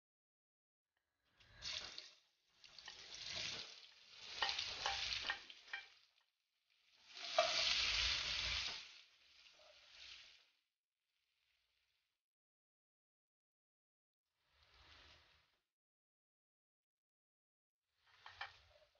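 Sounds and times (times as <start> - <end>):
shallots sizzling in hot oil: 1.4 - 6.2, 6.9 - 10.4.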